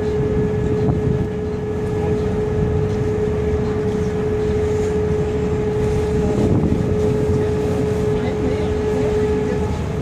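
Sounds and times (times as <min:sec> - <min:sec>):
boat engine rumbling: 0:00.0 - 0:10.0.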